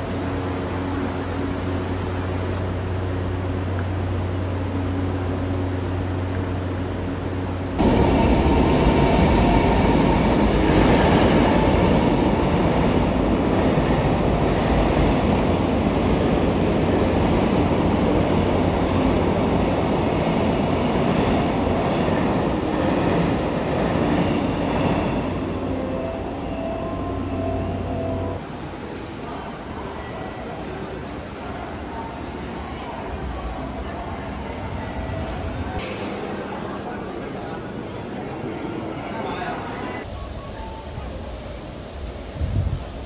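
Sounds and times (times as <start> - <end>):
train wheels rumbling on track: 0.0 - 25.7.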